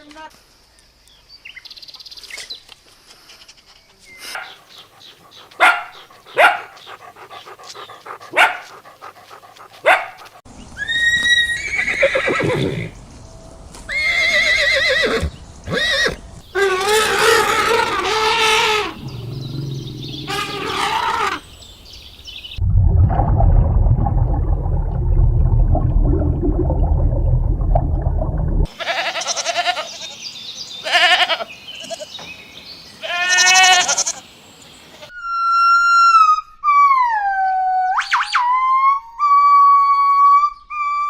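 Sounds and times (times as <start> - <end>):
horse neighing: 10.8 - 12.9, 13.9 - 21.4.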